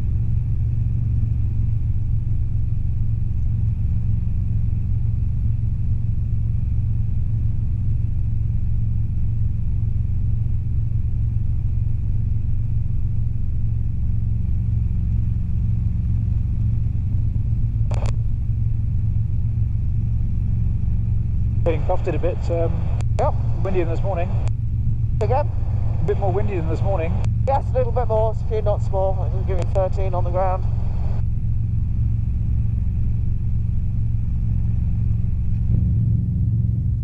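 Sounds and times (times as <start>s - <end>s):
helicopter engine and rotors drone: 0.0s - 37.0s
brief click: 17.9s - 18.2s.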